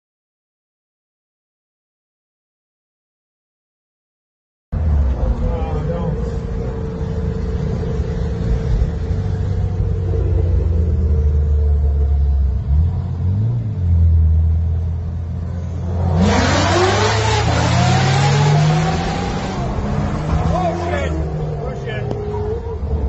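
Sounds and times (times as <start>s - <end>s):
car engine droning: 4.8s - 23.0s.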